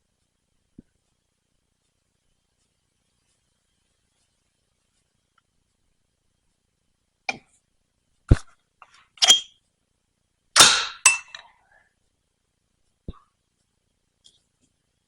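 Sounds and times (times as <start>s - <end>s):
pliers clinking on metal: 9.2s - 9.5s, 10.6s - 11.4s.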